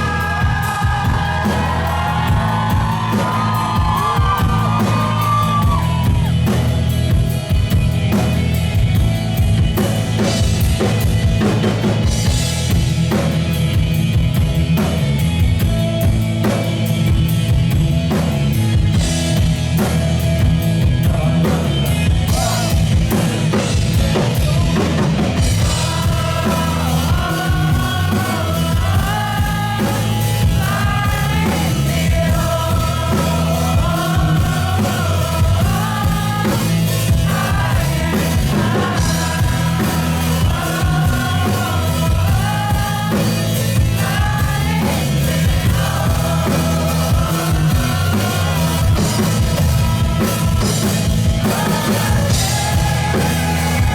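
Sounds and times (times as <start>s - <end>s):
man singing: 0.0s - 6.3s, 21.0s - 53.9s
live rock band playing: 0.0s - 53.9s.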